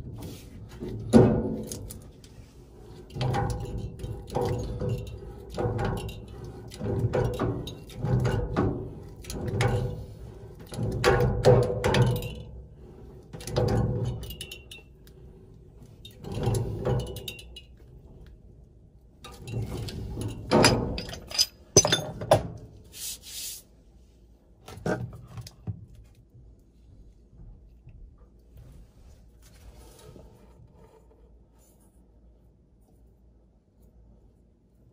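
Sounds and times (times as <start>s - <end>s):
metal parts knocking and scraping: 19.2s - 22.6s.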